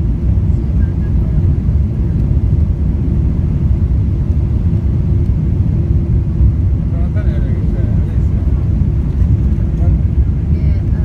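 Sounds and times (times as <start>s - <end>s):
low rumble in airliner cabin: 0.0s - 11.0s.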